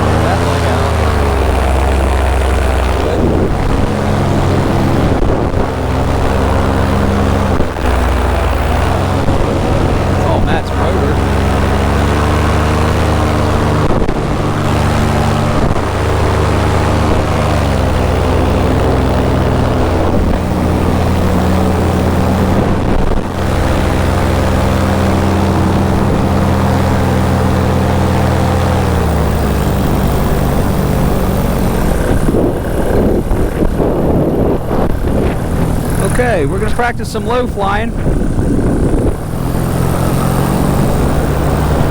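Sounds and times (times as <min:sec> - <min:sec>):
paramotor engine and propeller: 0:00.0 - 0:41.9.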